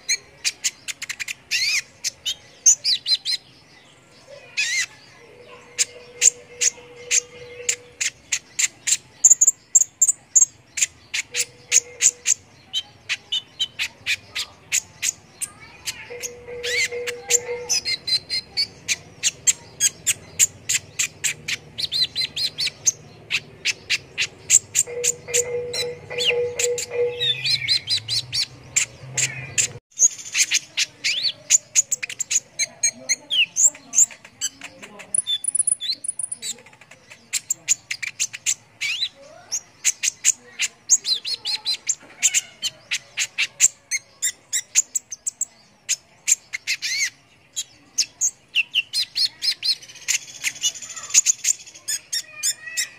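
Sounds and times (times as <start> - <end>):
small songbirds chirping: 0.0 - 52.9.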